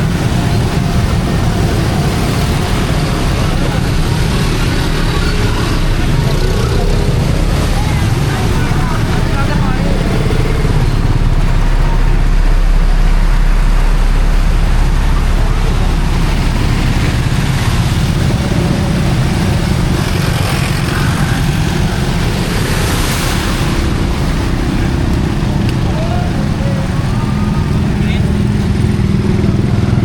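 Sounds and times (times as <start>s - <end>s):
passing vehicle engines rumble: 0.0s - 30.0s.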